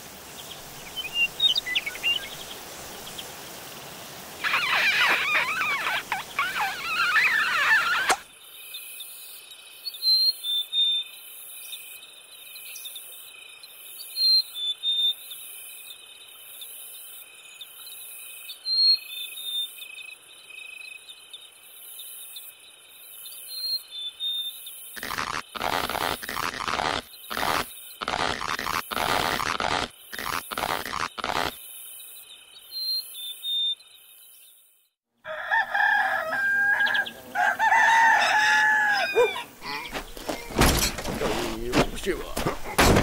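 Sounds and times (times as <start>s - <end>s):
loud wavering high calls: 4.4s - 8.2s, 37.8s - 40.0s
crickets chirping: 15.2s - 34.6s.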